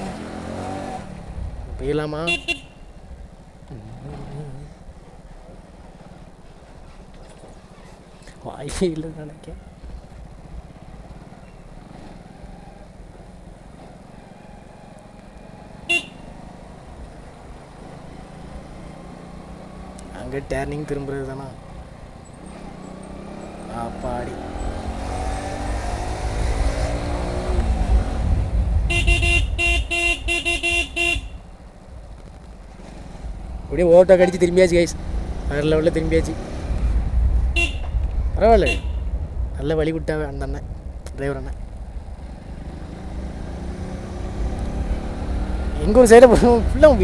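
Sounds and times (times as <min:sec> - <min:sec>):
low rumble of riding: 0:00.0 - 0:47.0
motorcycle engine running: 0:00.0 - 0:47.0
vehicle horn honking: 0:02.2 - 0:03.0, 0:15.8 - 0:16.6, 0:28.7 - 0:31.6, 0:34.2 - 0:34.6, 0:37.5 - 0:39.2.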